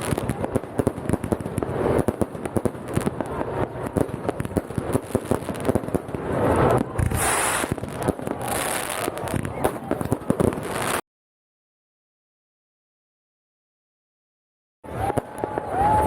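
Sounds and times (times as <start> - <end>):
fireworks bangs and crackling: 0.0 - 11.0, 14.9 - 16.0
fireworks hiss: 0.0 - 11.0.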